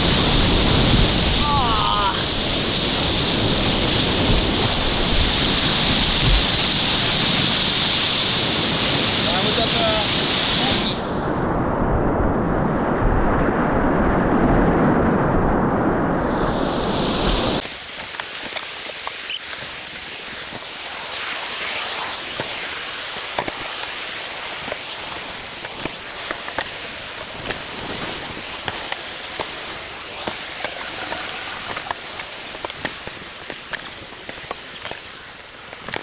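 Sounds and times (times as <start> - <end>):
river whitewater rushing: 17.6 - 36.0
water splashes and drops: 17.6 - 36.0.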